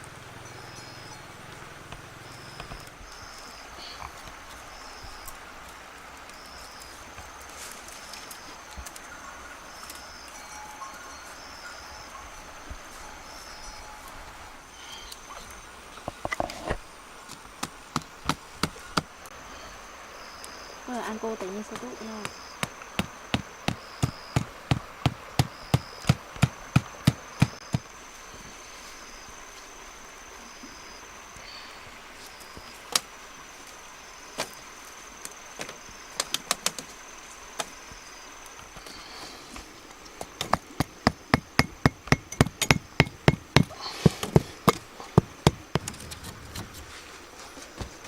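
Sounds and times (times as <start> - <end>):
wood being chopped: 17.6 - 19.1, 21.8 - 27.9, 40.3 - 46.0
high insect buzz: 18.6 - 48.0
sharp knocks: 22.2 - 27.9, 40.5 - 46.1.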